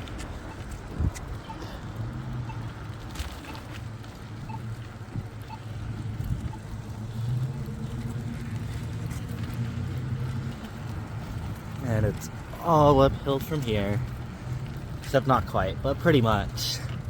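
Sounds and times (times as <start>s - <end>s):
wind noise: 0.0s - 1.7s, 4.4s - 13.9s
road noise: 0.0s - 17.0s
vehicle engine humming: 0.0s - 17.0s.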